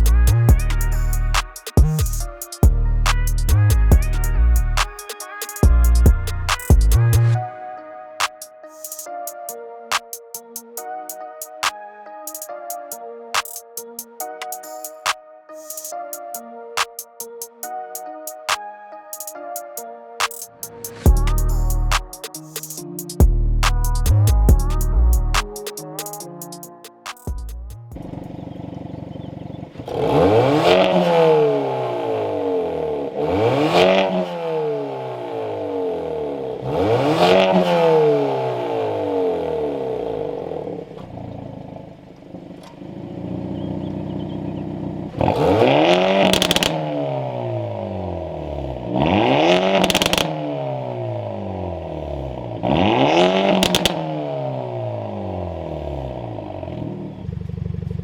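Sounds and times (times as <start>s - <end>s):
car engine rev blips: 36.6s - 51.5s, 52.4s - 54.6s.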